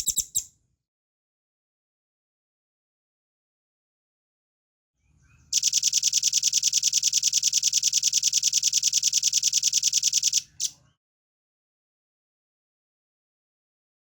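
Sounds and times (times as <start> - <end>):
bird trilling: 0.0 - 0.5.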